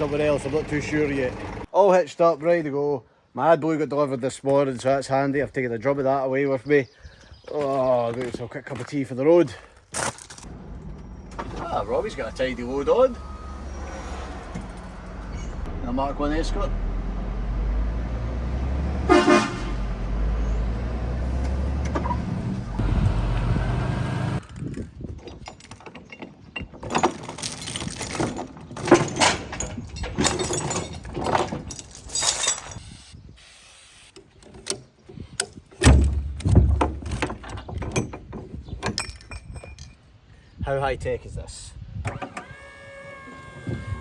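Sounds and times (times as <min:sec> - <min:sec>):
truck engine running: 0:00.0 - 0:01.7, 0:10.5 - 0:24.4
horn toot: 0:18.7 - 0:20.3.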